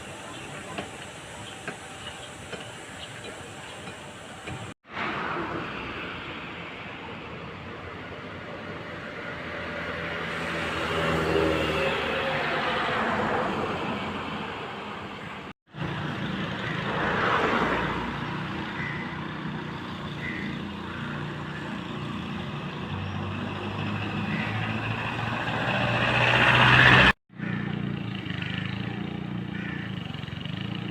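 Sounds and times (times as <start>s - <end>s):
road traffic: 0.0s - 30.9s
vehicle passing close: 9.4s - 21.2s, 22.0s - 30.9s.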